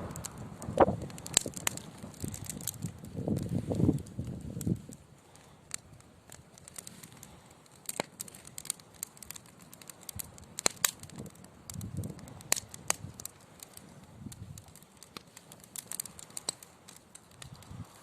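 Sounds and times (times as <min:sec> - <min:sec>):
logs popping: 0:00.0 - 0:18.0
low rumble of flame: 0:00.0 - 0:18.0
wood fire crackling: 0:00.0 - 0:18.0.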